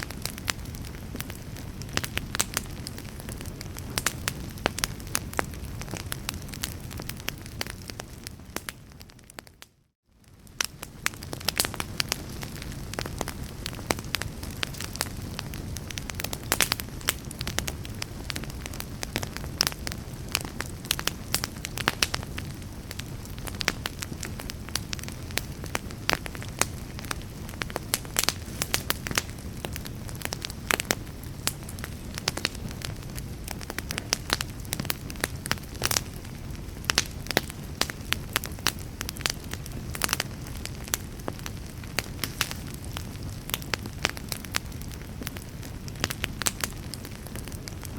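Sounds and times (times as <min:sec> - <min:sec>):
logs crackling and popping: 0:00.0 - 0:47.9
low rush of flame: 0:10.2 - 0:47.9.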